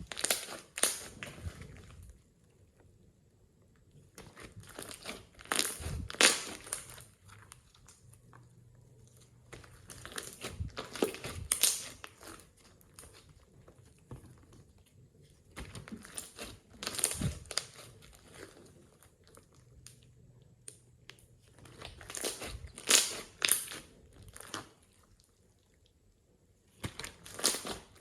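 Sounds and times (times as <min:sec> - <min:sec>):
slime being squished by hand: 0:00.0 - 0:02.2, 0:04.1 - 0:08.2, 0:09.2 - 0:14.8, 0:15.4 - 0:19.2, 0:20.6 - 0:25.2, 0:26.7 - 0:28.0.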